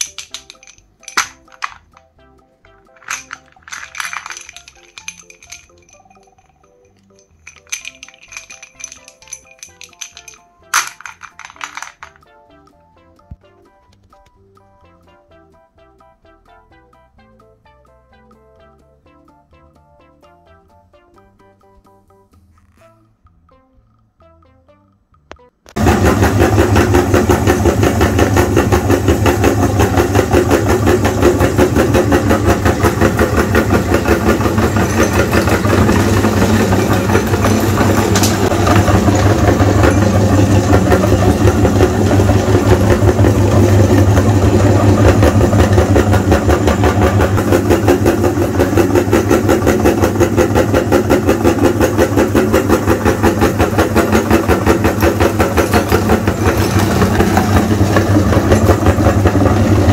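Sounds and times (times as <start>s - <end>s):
engine idling: 25.8s - 59.9s.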